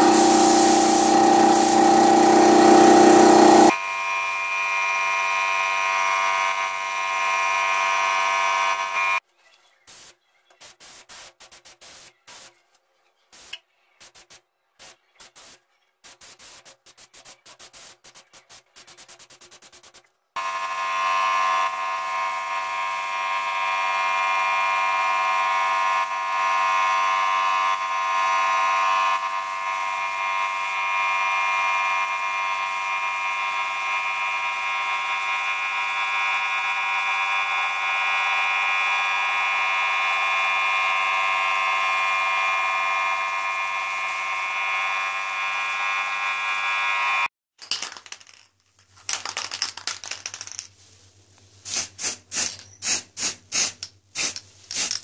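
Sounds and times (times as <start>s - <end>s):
electric power tool buzzing: 0.0s - 9.2s, 20.4s - 47.3s.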